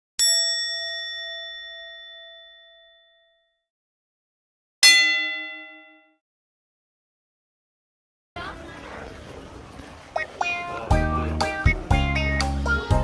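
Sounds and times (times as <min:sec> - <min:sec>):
bell-like chime: 0:00.2 - 0:03.6.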